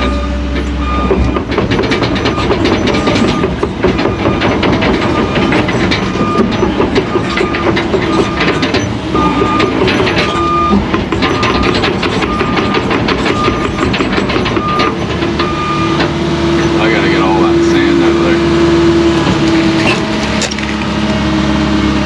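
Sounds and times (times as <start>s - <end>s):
excavator engine under load: 0.0s - 22.0s.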